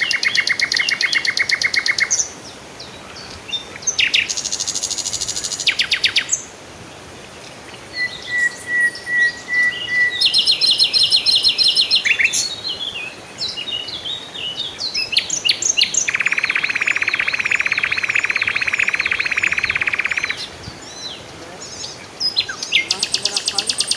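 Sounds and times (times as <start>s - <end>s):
songbirds chirping: 0.0s - 23.9s
fast bird trill: 16.1s - 20.4s, 22.6s - 23.9s.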